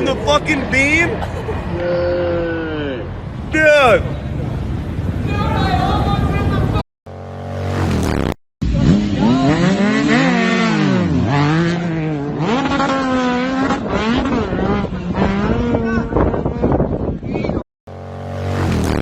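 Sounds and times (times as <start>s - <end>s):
vehicle engine revving: 7.1s - 16.8s, 17.9s - 19.0s.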